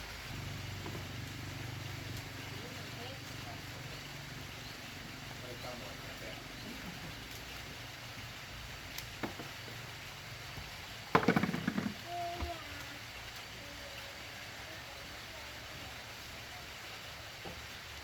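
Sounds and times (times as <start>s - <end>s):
rapid clattering knocks: 10.6s - 12.0s.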